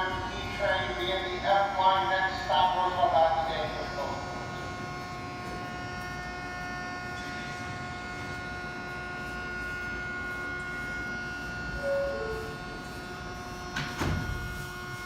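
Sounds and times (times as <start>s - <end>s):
subway car rumble: 0.0s - 10.2s, 11.1s - 15.0s
electrical whine: 0.0s - 15.0s
falling two-note tone: 11.8s - 12.8s.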